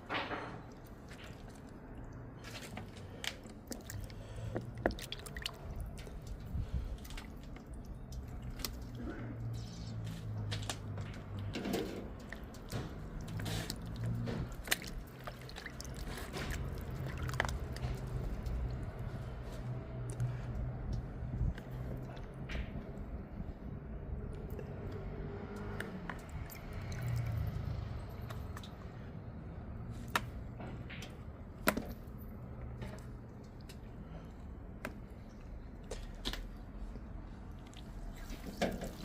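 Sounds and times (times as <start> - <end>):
wet liquid noises: 0.6 - 30.5, 31.3 - 39.0.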